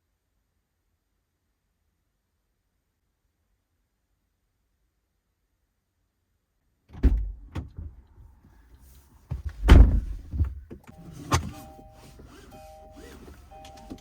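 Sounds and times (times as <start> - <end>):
car door knocks and thuds: 9.3 - 11.4
two-note car warning chime: 11.0 - 14.0.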